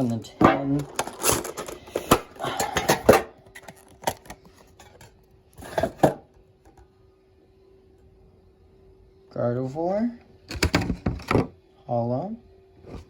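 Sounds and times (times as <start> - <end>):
card pack crinkling and tapping: 0.0 - 5.1
faint steady hum: 0.0 - 13.0.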